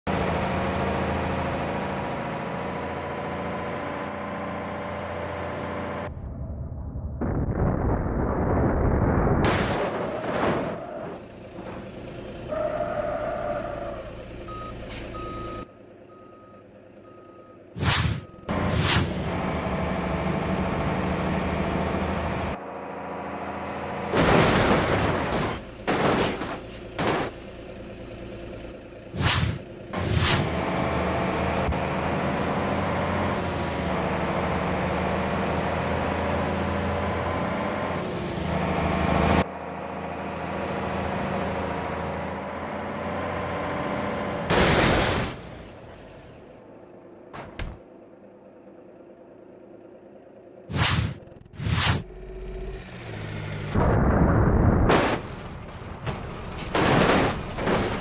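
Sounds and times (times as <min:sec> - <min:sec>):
engine hum: 0:00.0 - 0:58.0
vehicle engine idling: 0:45.8 - 0:51.5.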